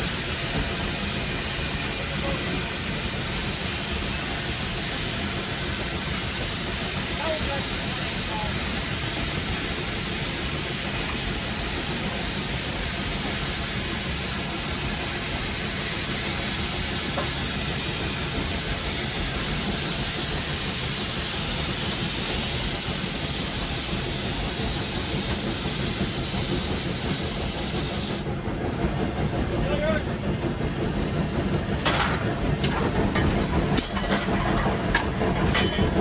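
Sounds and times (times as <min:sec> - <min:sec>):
steam hissing: 0:00.0 - 0:36.0
locomotive low rumble: 0:24.2 - 0:36.0.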